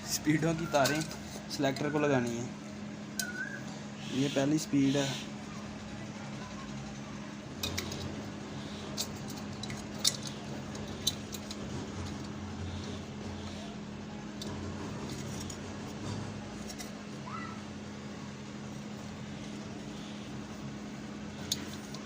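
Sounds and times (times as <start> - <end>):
steady low hum: 0.0 - 22.0
sharp metallic clicks of tools: 21.4 - 22.0.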